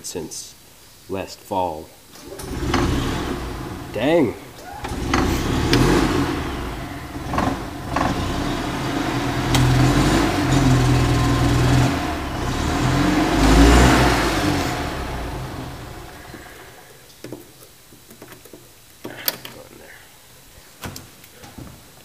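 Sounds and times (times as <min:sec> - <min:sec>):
small gasoline engine running: 0:02.4 - 0:04.1, 0:04.8 - 0:16.8.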